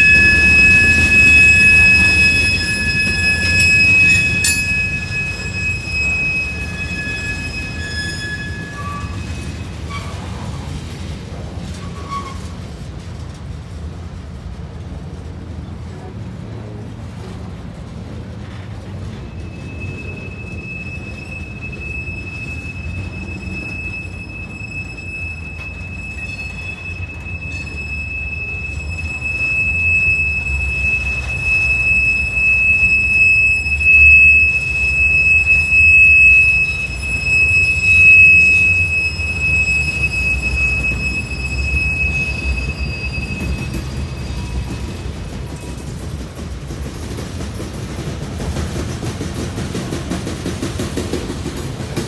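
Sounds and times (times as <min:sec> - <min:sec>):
high-pitched wheel squeal: 0:00.0 - 0:10.7, 0:11.7 - 0:12.6, 0:19.1 - 0:46.2
train wheels rumbling on rails: 0:00.0 - 0:52.0.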